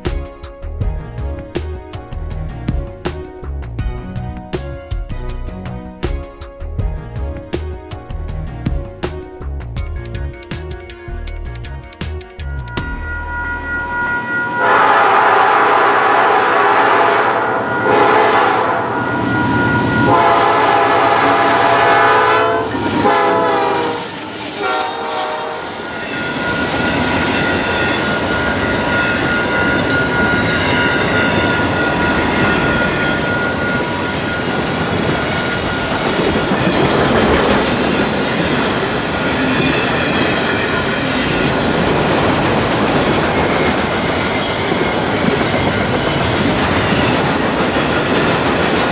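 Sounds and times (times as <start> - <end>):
locomotive air horn blasts: 12.9 - 26.2
train wheels clattering on rails: 25.7 - 48.9.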